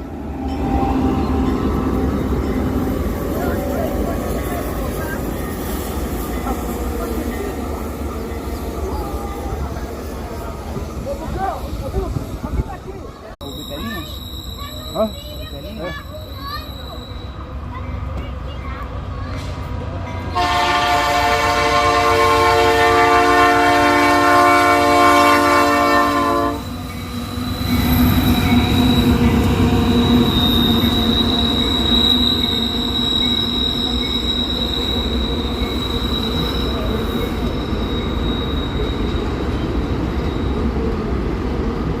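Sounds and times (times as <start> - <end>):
freight train rumbling past: 0.0 - 42.0
high wheel squeal: 13.4 - 17.7, 26.4 - 40.8
locomotive air horn blast: 20.3 - 26.6.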